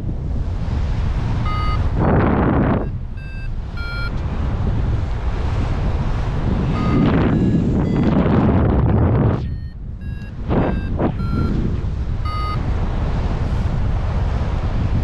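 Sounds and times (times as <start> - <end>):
wind buffeting microphone: 0.0 - 15.0
variometer short beeps: 1.4 - 4.2, 6.6 - 12.7.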